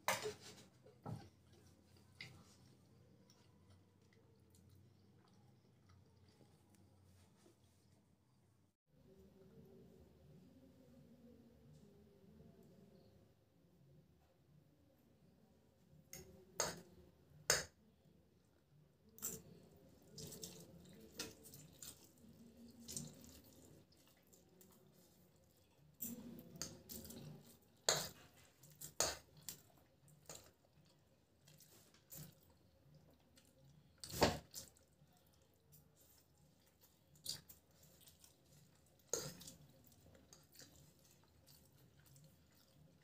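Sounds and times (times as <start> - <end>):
slurping and chewing noodles: 0.3 - 7.0, 19.2 - 43.0.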